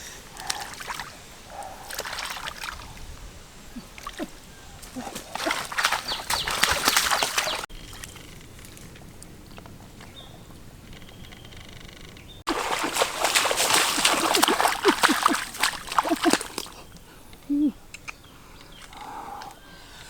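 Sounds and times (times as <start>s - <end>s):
water splashing and sloshing: 0.0s - 9.3s, 12.4s - 17.0s.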